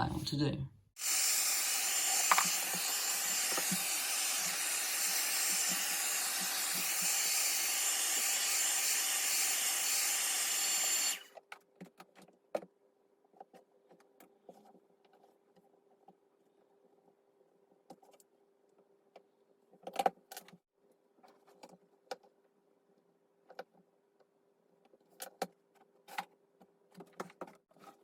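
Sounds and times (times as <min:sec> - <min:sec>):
hot-air blower whining: 0:01.0 - 0:11.3
small tools clicking and tapping: 0:02.2 - 0:03.8.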